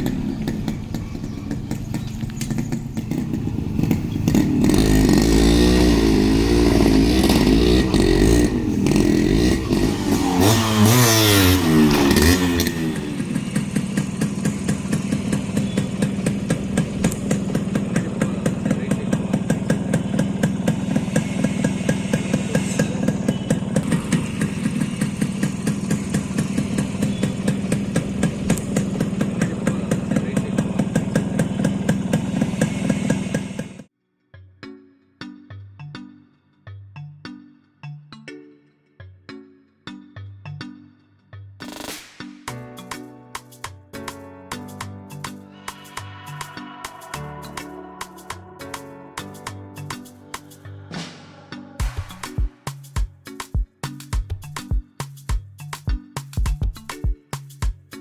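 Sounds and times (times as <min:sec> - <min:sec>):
two-stroke engine revving and idling: 0:00.0 - 0:33.9.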